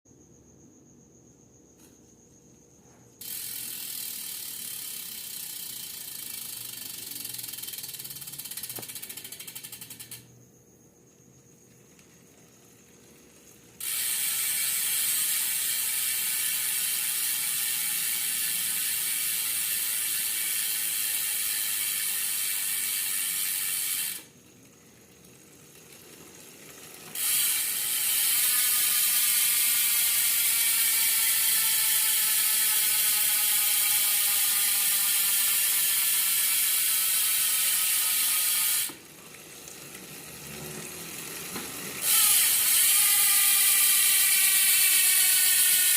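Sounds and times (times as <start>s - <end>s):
bicycle hub ratchet clicking: 3.2s - 10.4s, 11.1s - 45.9s.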